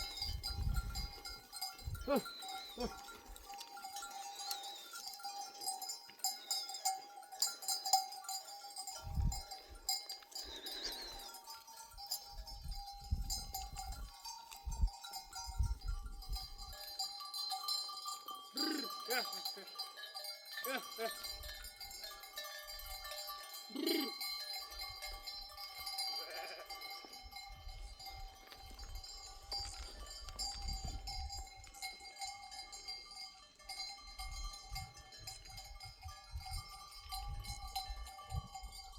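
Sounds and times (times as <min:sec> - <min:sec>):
sheep bells clanking: 0:00.0 - 0:38.9
sheep bleating: 0:18.6 - 0:19.3, 0:23.7 - 0:24.2, 0:26.2 - 0:26.7.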